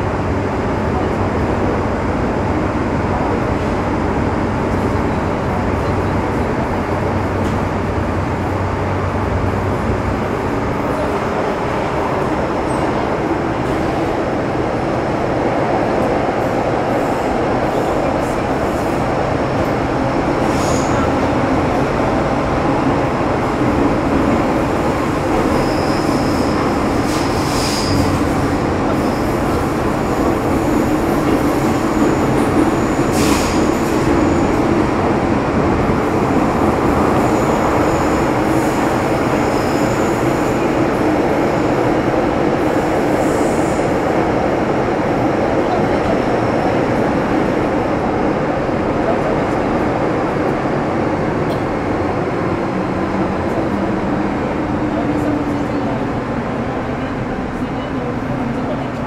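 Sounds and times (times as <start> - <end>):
train running noise in tunnel: 0.0 - 59.0
high wheel squeal: 25.4 - 28.2.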